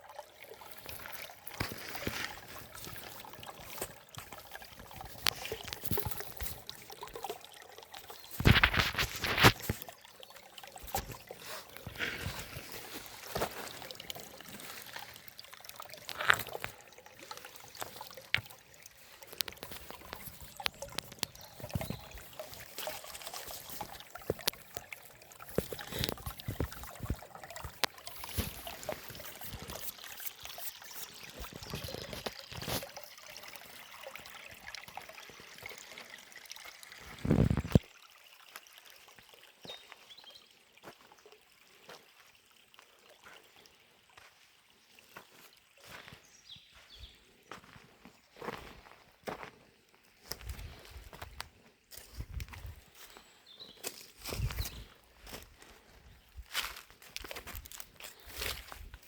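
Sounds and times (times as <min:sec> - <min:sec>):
stream trickling over stones: 0:00.0 - 0:59.0
small splashes: 0:00.3 - 0:48.8, 0:50.2 - 0:59.0
deep gurgle: 0:00.4 - 0:37.9.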